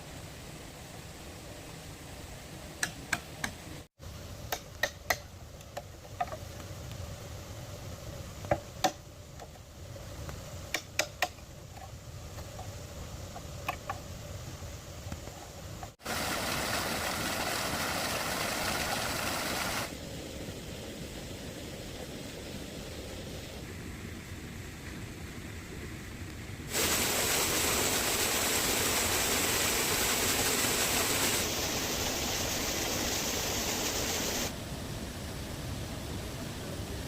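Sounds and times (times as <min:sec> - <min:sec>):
steady hiss: 0:00.0 - 0:37.0
knocks and taps on bamboo: 0:04.5 - 0:06.4, 0:08.4 - 0:09.6, 0:10.7 - 0:11.4.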